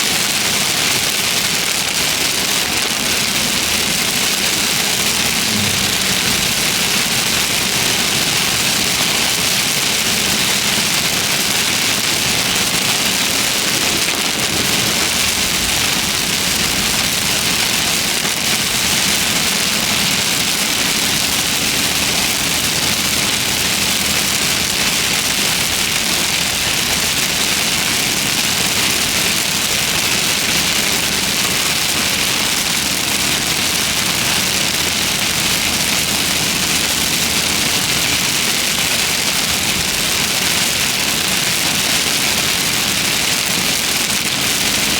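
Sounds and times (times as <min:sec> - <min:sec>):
heavy rain on a car: 0:00.0 - 0:44.9
car engine running: 0:03.4 - 0:09.3, 0:11.7 - 0:19.5.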